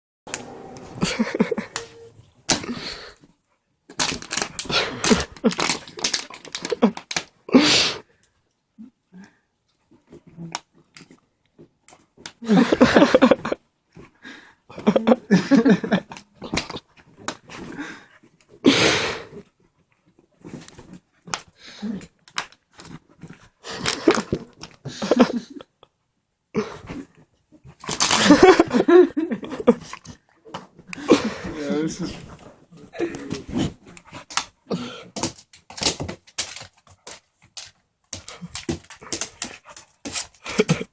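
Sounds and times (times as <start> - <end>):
dog scuffling with clicks and scrapes: 31.5 - 40.9.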